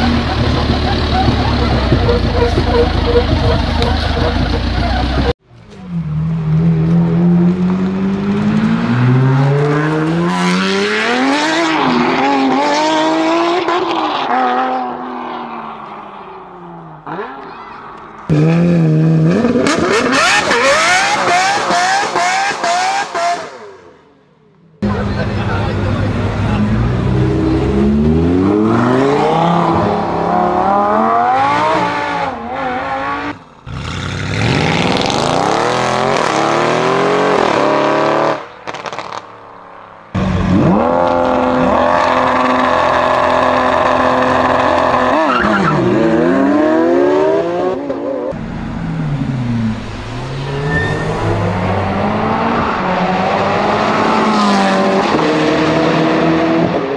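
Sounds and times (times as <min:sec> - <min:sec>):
supercar engines revving: 0:00.0 - 0:24.0, 0:24.8 - 0:56.9
cars sweeping past: 0:24.8 - 0:56.9.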